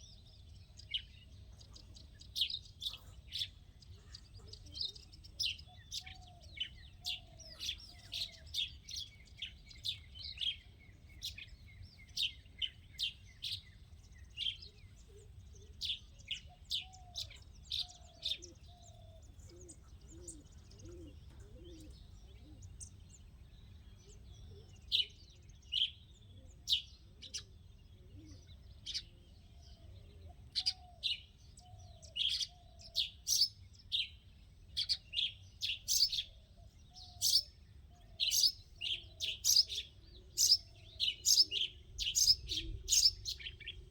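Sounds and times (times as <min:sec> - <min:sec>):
birds chirping: 0:00.0 - 0:43.9
lower repeated bird call: 0:34.8 - 0:43.9.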